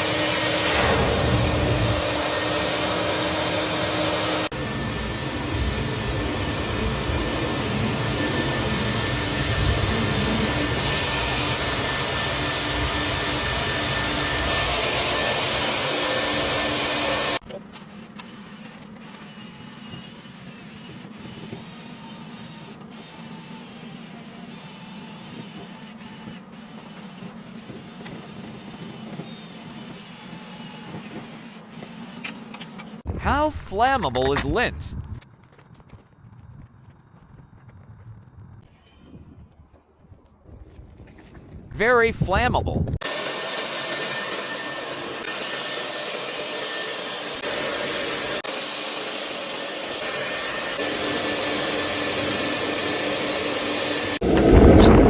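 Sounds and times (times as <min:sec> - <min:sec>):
vacuum rush of air: 0:00.0 - 0:13.5, 0:54.1 - 0:55.0
motor humming: 0:00.0 - 0:17.4, 0:43.0 - 0:55.0
faint high whine: 0:54.1 - 0:55.0.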